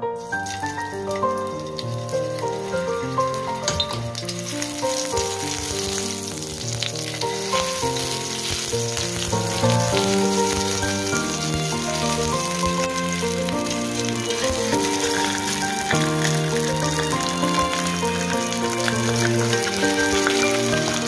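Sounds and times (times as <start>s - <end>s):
background music melody: 0.0s - 21.0s
ginger sizzling in hot oil: 0.2s - 21.0s.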